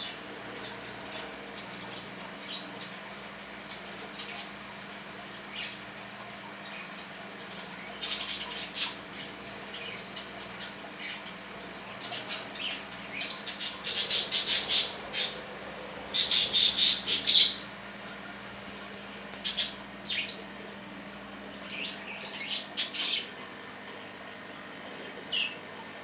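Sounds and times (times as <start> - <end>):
budgerigars squawking: 12.0 - 17.6, 19.4 - 20.5, 21.7 - 23.3.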